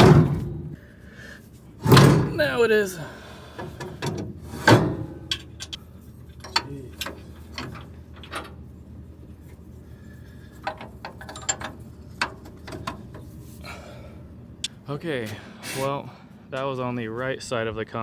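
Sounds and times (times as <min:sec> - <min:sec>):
metal clanking: 0:00.0 - 0:00.8, 0:01.8 - 0:14.6
light metal ticks and knocks: 0:03.6 - 0:13.6.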